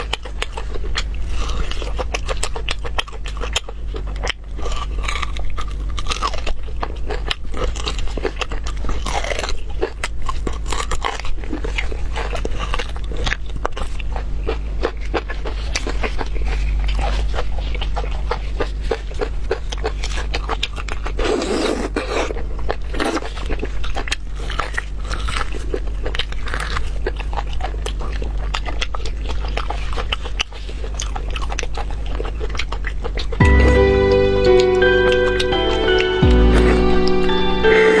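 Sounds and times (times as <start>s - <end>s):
wet chewing and smacking: 0.0s - 33.4s
slurping: 21.2s - 22.3s.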